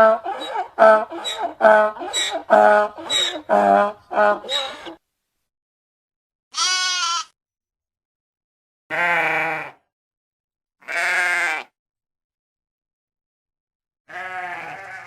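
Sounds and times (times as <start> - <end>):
farm animal bleating: 0.0 - 5.0, 6.5 - 7.4, 8.9 - 9.8, 10.8 - 11.7, 14.1 - 15.0.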